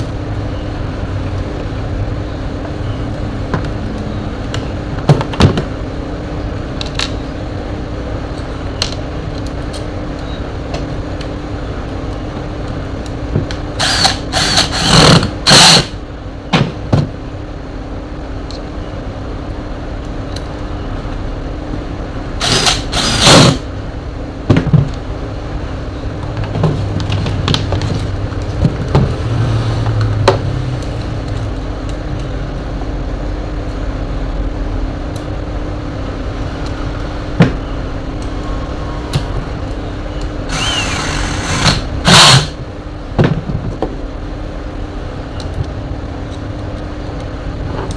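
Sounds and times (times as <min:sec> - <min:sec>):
steady background hum: 0:00.0 - 0:47.9
loud scraping bursts: 0:13.8 - 0:16.0, 0:22.4 - 0:23.7, 0:35.5 - 0:42.6.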